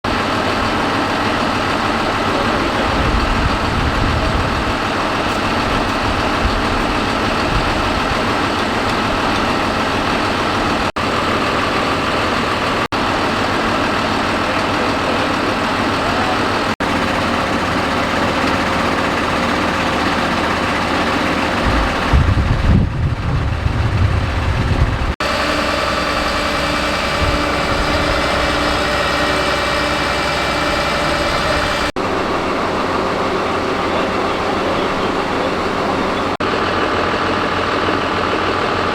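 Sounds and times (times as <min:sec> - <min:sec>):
fire engine idling: 0:00.0 - 0:38.9
steady tones: 0:24.4 - 0:36.4.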